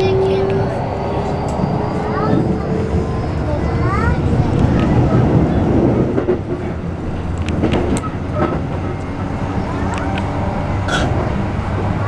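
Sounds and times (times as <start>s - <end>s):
train wheels rumbling on rails: 0.0s - 12.0s
sharp track clicks: 7.3s - 8.6s.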